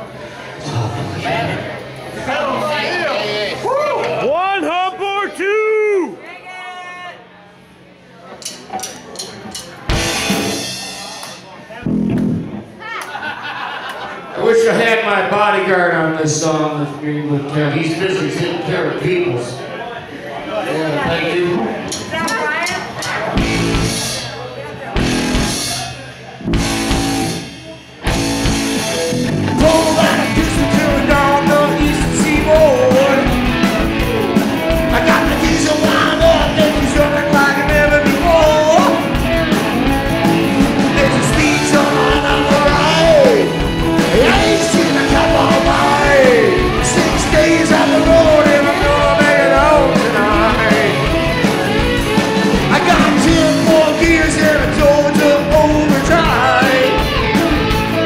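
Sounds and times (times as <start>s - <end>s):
live rock band playing: 9.8s - 12.6s, 22.0s - 58.0s.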